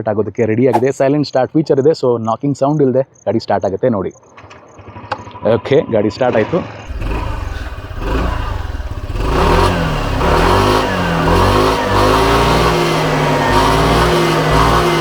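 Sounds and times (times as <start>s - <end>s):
scooter engine revving: 6.9s - 15.0s.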